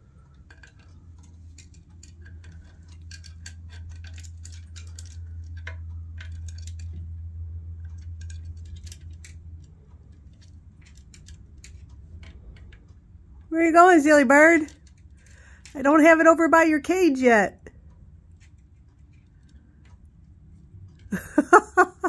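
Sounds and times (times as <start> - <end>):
parrot claws tapping: 0.0 - 7.1
low hum: 0.0 - 22.0.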